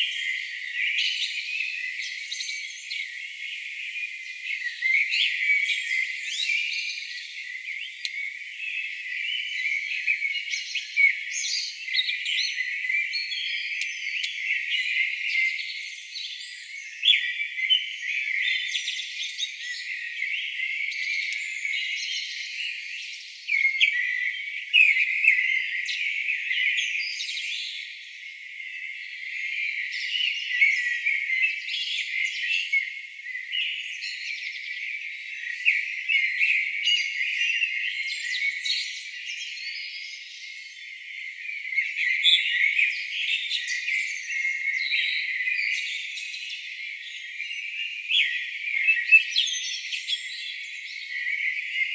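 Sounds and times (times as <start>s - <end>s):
birds chirping and trilling: 0.0s - 15.6s, 41.2s - 51.9s.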